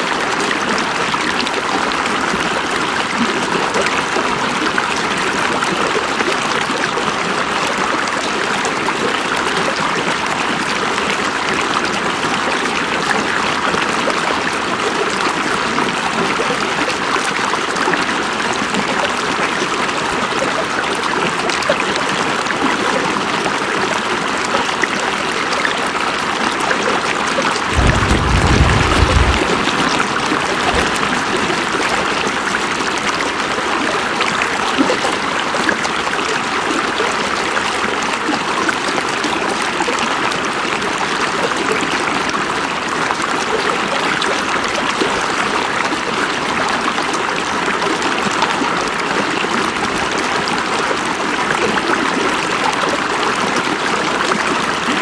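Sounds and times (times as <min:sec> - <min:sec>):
low rumble: 0:27.7 - 0:31.1
river flowing over rocks: 0:27.7 - 0:31.5.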